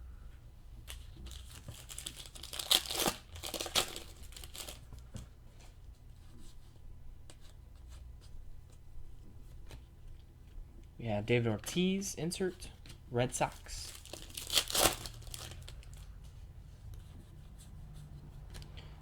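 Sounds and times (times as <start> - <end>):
foil wrapper tearing and crinkling: 0.9 - 4.9, 13.4 - 16.1
cards clicking and rustling: 0.9 - 5.7, 12.6 - 16.1.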